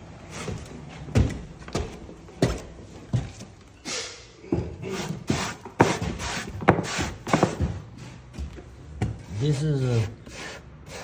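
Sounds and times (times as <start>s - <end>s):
hand scraper on wooden floor: 4.8s - 7.8s, 9.3s - 11.0s.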